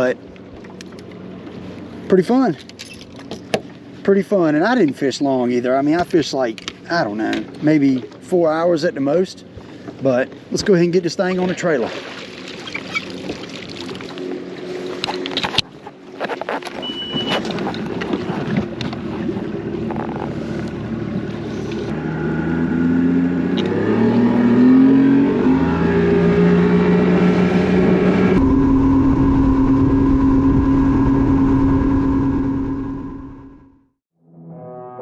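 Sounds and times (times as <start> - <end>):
engine revving: 19.9 - 33.9.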